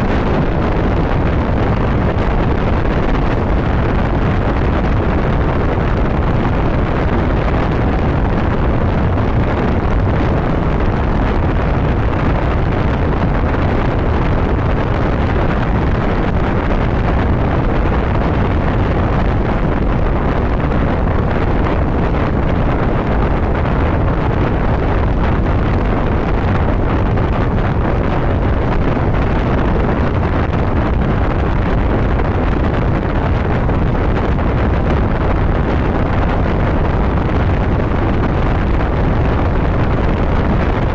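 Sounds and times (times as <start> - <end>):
road noise: 0.0 - 40.9
wind rushing over microphone: 0.0 - 40.9.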